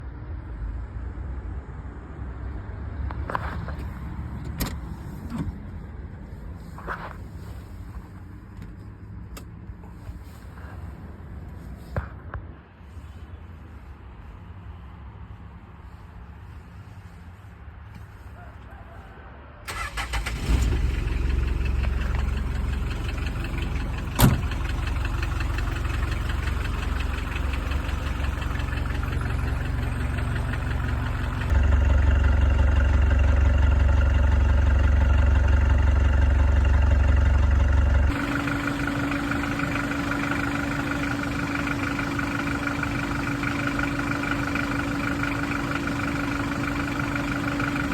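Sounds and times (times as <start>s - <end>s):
starter motor cranking: 19.7s - 31.5s
diesel engine clattering: 19.7s - 47.9s.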